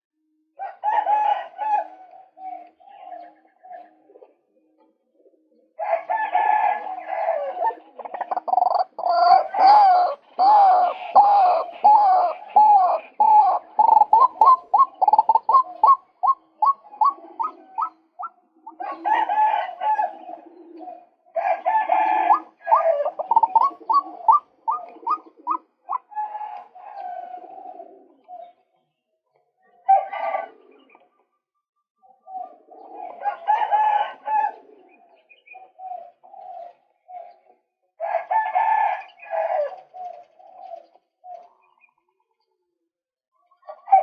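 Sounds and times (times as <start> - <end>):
waterhen calling harsh notes: 8.1 - 18.3.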